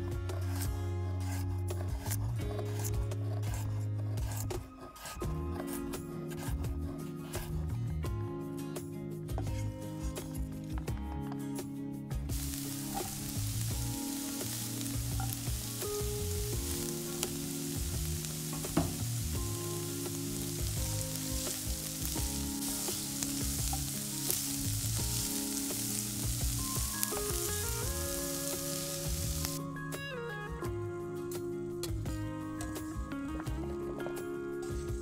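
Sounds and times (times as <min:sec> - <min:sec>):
soft background music: 0:00.0 - 0:35.0
food sizzling in a pan: 0:12.3 - 0:29.6.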